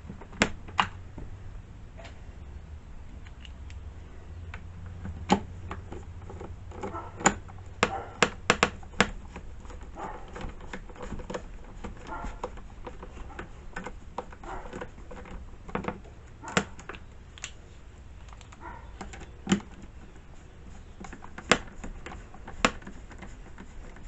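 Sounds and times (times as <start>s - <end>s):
low steady hum: 0.0s - 24.0s
hand tools clicking and tapping: 4.4s - 17.6s, 18.2s - 24.0s.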